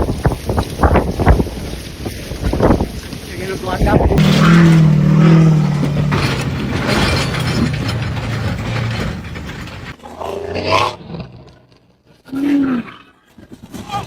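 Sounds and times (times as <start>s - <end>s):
machinery humming and rattling: 4.2s - 10.0s.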